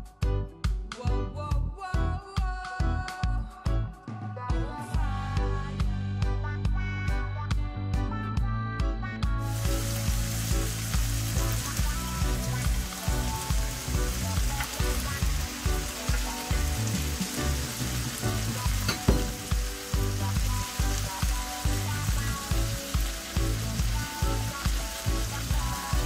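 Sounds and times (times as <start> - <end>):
music: 0.0 - 26.0
food sizzling in a frying pan: 9.4 - 26.0.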